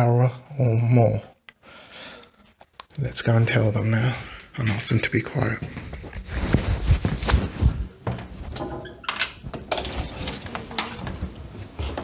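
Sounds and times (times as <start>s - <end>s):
door squeak: 8.7s - 9.4s.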